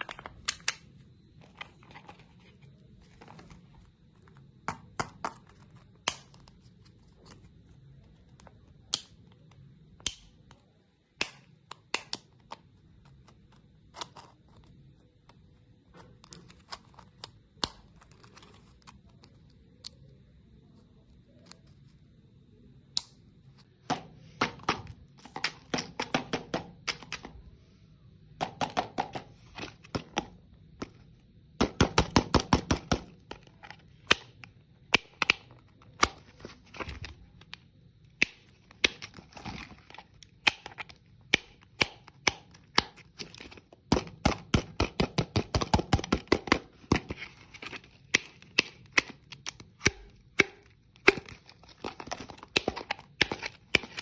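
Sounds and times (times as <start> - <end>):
hard candy crunching: 33.0 - 54.0.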